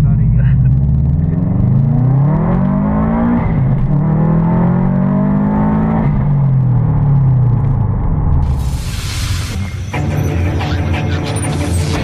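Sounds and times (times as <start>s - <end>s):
car engine accelerating hard: 0.0s - 8.5s.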